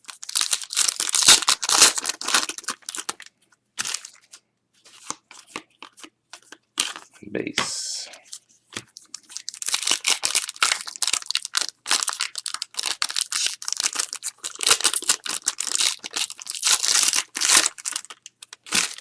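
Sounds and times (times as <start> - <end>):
wrappers being torn and crinkled: 0.0 - 4.2, 9.0 - 19.0.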